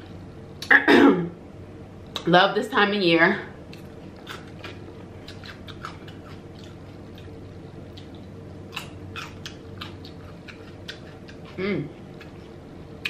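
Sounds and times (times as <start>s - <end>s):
faint steady hum: 0.0s - 13.0s
chewing: 3.7s - 12.6s.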